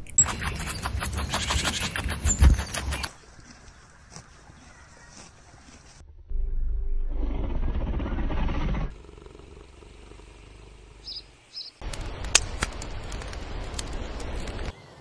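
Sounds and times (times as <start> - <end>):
big cat growling: 6.0 - 11.1.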